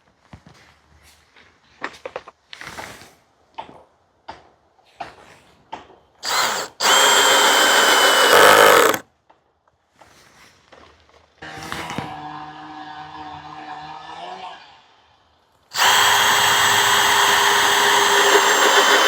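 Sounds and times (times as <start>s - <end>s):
power drill driving screw: 6.2s - 9.0s, 15.7s - 19.0s.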